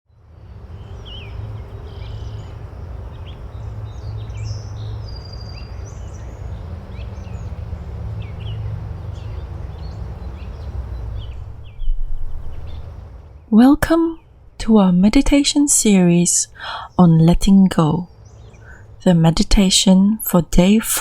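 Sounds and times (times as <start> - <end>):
birds chirping and singing: 0.6 - 13.1, 15.9 - 20.0
steady low rumble: 1.0 - 21.0.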